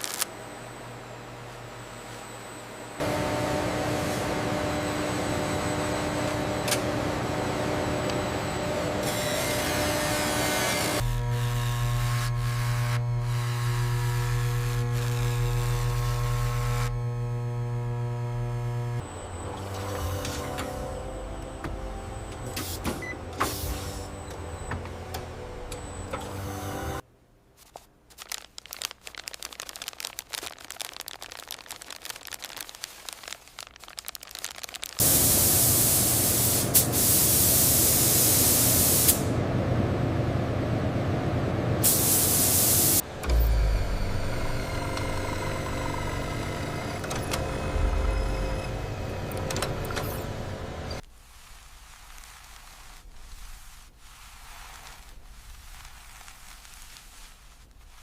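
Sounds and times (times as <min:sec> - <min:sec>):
low machine noise: 0:00.0 - 0:27.0, 0:35.0 - 0:51.0
machine hum: 0:00.0 - 0:27.0, 0:34.7 - 0:51.0
loud steady hiss: 0:35.0 - 0:39.3, 0:41.8 - 0:43.0.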